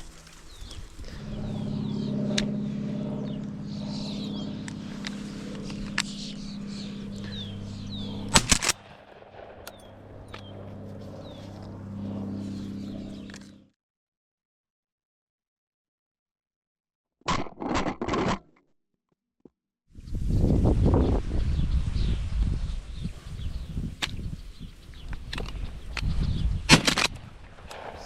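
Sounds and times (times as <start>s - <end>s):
small birds chirping: 0.0s - 8.6s, 9.7s - 13.6s, 20.0s - 26.7s
low engine-like hum: 0.0s - 13.7s.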